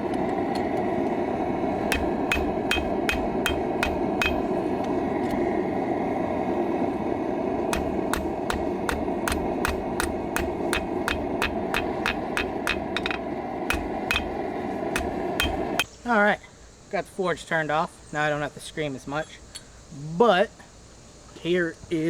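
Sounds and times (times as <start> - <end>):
forge roaring: 0.0 - 15.8
hammer striking metal on anvil: 1.8 - 4.7, 7.7 - 15.9.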